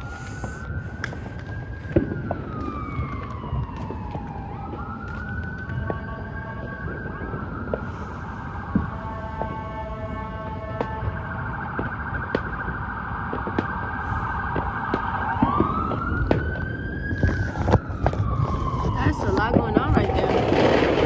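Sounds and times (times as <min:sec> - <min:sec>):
emergency siren wailing: 0:00.0 - 0:21.0
fireworks bangs and pops: 0:00.1 - 0:09.6, 0:10.8 - 0:21.0.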